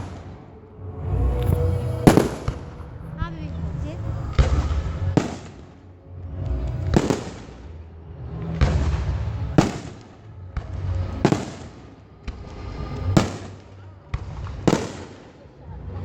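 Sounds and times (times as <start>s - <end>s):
fireworks crackling: 0.0s - 5.7s
fireworks bangs: 0.0s - 5.8s
low rumbling: 0.0s - 9.6s.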